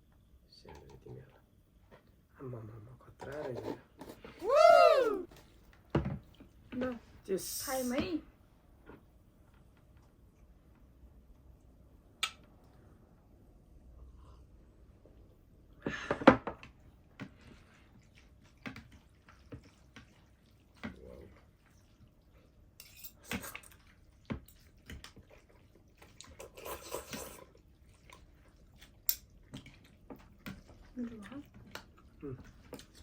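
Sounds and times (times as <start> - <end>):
noisy slurps of soup: 25.3 - 28.7.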